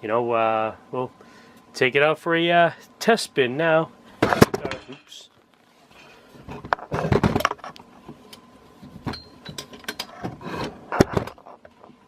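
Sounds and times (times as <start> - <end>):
clicks and rattles of fan hardware: 4.2 - 5.2, 6.6 - 12.0.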